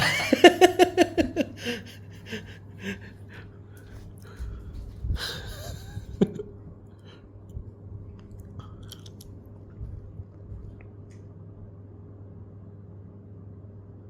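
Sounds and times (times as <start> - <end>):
low electrical hum: 0.0 - 14.0
person chewing: 8.2 - 9.5.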